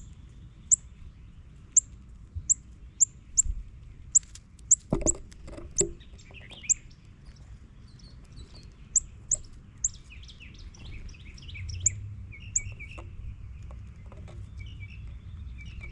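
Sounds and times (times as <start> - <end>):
low steady rumble: 0.0 - 15.9
small birds chipping: 0.0 - 15.9
bird twittering chatter: 5.8 - 15.9.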